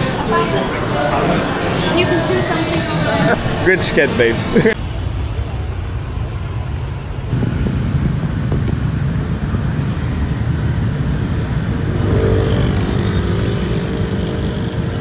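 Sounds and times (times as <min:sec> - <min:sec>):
traffic rumble: 0:04.4 - 0:15.0
engine passing close by: 0:07.0 - 0:15.0.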